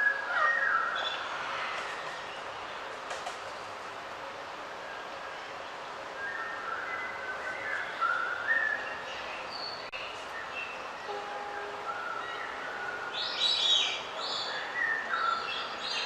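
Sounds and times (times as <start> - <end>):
background hiss: 0.1 - 16.0
birds singing whistled notes: 6.2 - 16.0.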